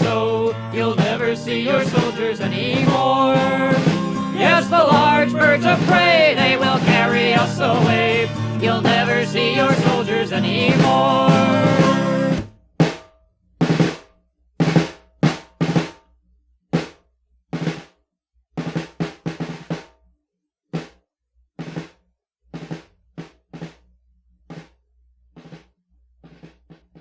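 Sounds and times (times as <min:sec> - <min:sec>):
drum beating march time: 0:00.0 - 0:13.0, 0:21.6 - 0:23.8, 0:24.5 - 0:24.8, 0:25.4 - 0:27.0.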